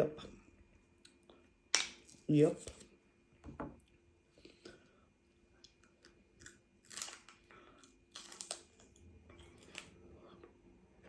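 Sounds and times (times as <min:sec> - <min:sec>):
celery crunching when chewed: 0:05.6 - 0:10.4.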